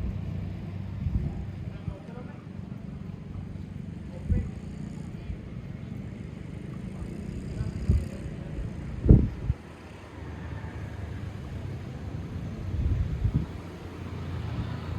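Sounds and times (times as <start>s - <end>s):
wind buffeting microphone: 0.0s - 2.0s, 7.1s - 9.8s, 10.7s - 14.9s.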